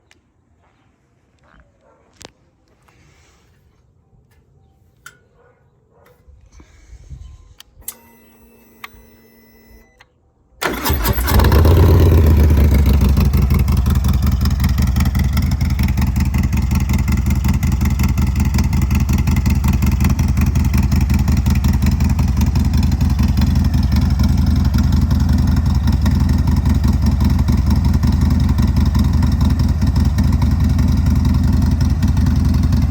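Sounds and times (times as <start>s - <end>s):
clicks: 7.6s - 11.0s
motorcycle engine starting and idling: 7.8s - 10.0s, 10.6s - 32.9s.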